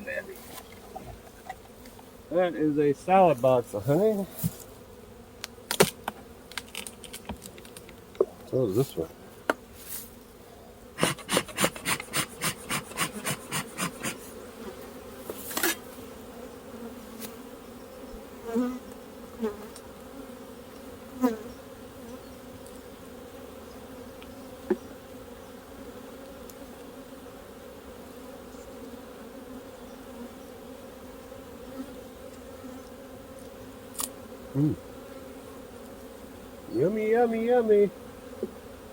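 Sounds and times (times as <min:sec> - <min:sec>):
honey bees buzzing: 0:00.0 - 0:38.9.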